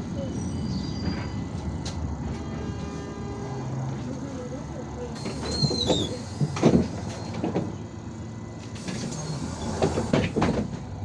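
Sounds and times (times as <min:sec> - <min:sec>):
bus running noise: 0:00.0 - 0:11.0
short high squeak: 0:05.3 - 0:06.4.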